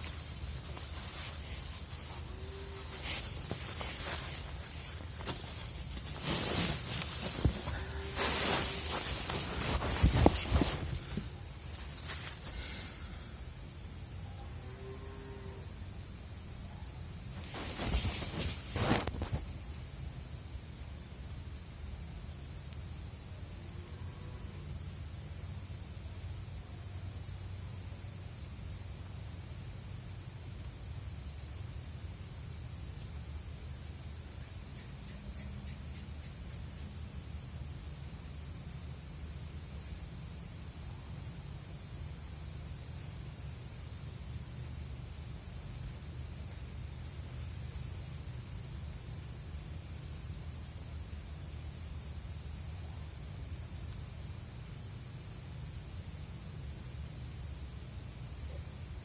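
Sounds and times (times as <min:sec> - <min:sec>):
cricket chirps: 0:00.0 - 0:59.0
insects droning: 0:00.0 - 0:59.0.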